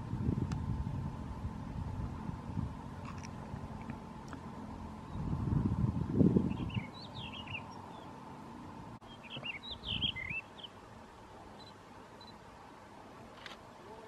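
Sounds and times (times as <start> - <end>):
low rumble: 0.0 - 7.3
bird warbling song: 6.3 - 8.2, 9.0 - 10.8.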